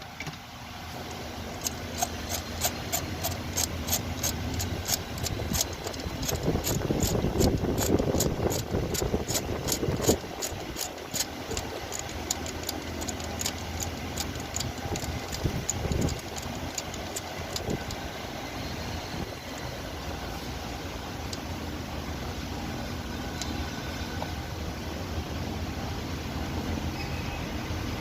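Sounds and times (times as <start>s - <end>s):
socket ratchet clicking: 1.6s - 18.1s.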